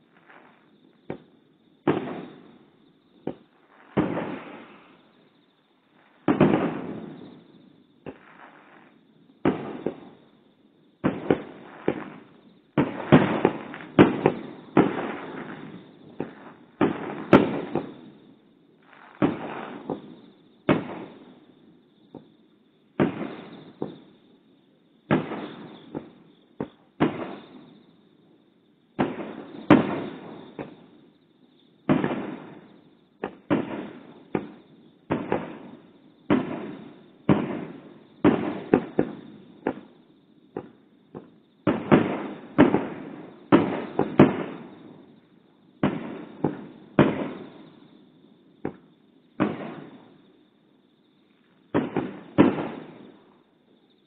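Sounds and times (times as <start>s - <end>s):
firework shells booming with echo: 0.0s - 24.3s, 25.0s - 28.0s, 28.9s - 50.5s, 51.6s - 53.5s.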